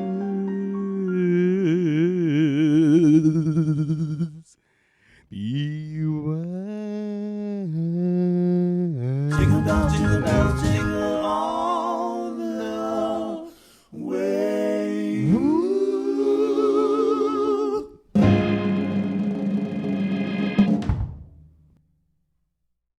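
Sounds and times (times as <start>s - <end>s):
voices singing a cappella: 0.0s - 4.6s, 5.3s - 18.0s.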